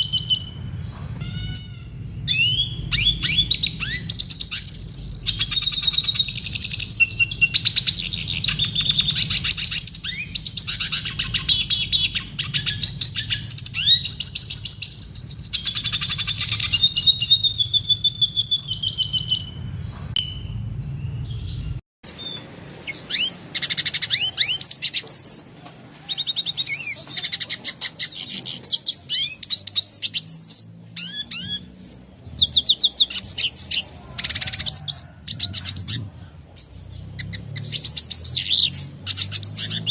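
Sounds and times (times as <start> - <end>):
low hum: 0.0 - 14.0, 18.7 - 21.8
bird twittering song: 0.0 - 25.5, 26.1 - 39.9.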